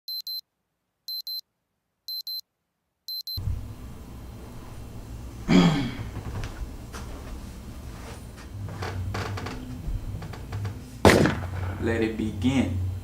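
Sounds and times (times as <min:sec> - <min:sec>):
electronic alarm double beeps: 0:00.1 - 0:00.4, 0:01.1 - 0:01.4, 0:02.1 - 0:02.4, 0:03.1 - 0:03.4
steady background noise: 0:03.4 - 0:13.0
loud short thump: 0:11.1 - 0:11.8.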